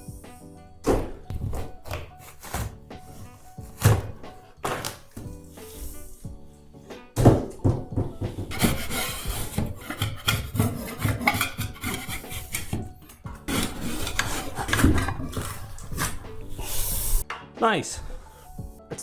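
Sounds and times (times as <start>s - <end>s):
tiles tearing and knocking: 1.5s - 5.3s, 8.3s - 16.6s
metal scraper scraping ceiling tiles: 1.8s - 6.1s, 8.2s - 17.2s.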